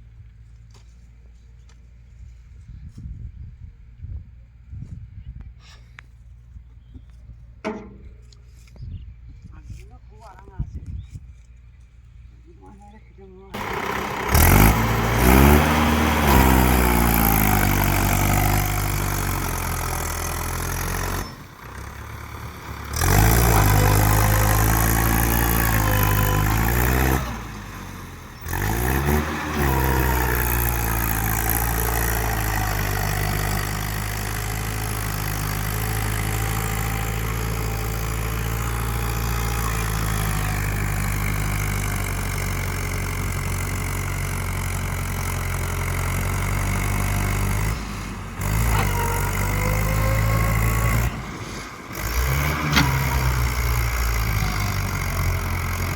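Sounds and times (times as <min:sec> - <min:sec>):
tractor diesel engine revving: 0:13.5 - 0:55.9.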